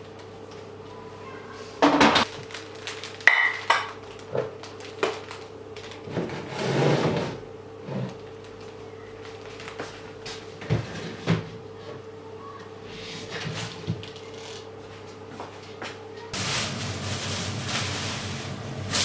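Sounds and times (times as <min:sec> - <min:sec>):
kitchen containers clattering: 0:03.3 - 0:04.4
rustling scrape: 0:06.1 - 0:08.2, 0:16.4 - 0:19.0.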